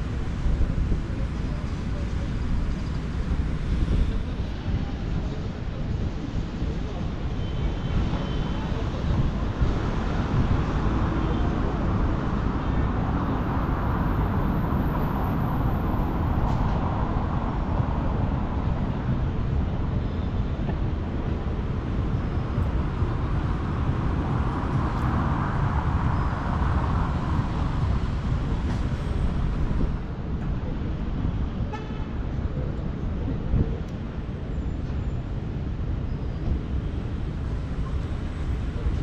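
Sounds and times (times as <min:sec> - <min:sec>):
road noise from passing vehicles: 0:00.0 - 0:39.0.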